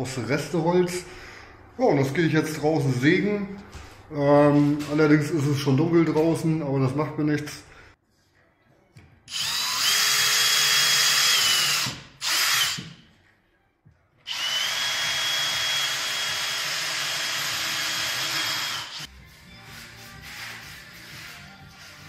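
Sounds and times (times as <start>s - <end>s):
electric power saw cutting wood: 14.3s - 19.1s.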